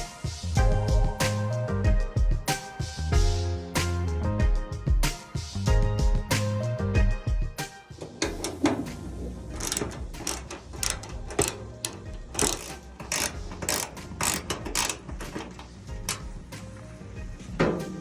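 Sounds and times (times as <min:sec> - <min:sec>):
faint background music: 0:00.0 - 0:18.0
sharp mechanical clicks: 0:08.4 - 0:16.3.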